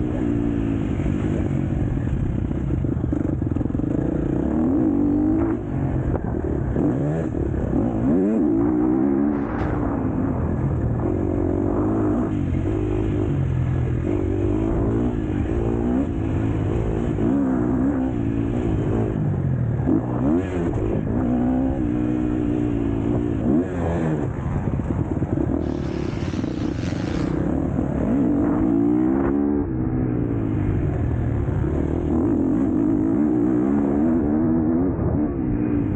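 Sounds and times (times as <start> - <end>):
motocross bike engine revving: 25.5 - 29.6.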